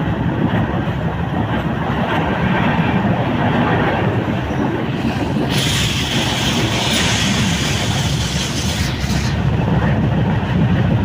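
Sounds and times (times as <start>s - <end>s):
train wheels rumbling on track: 0.0s - 11.0s
bright hiss: 5.5s - 9.5s.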